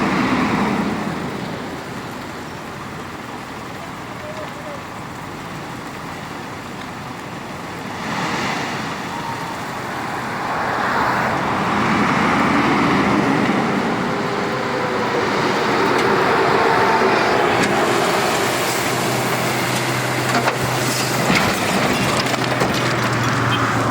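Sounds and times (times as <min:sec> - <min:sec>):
diesel truck engine running: 0:00.0 - 0:23.9
road noise: 0:00.0 - 0:23.9.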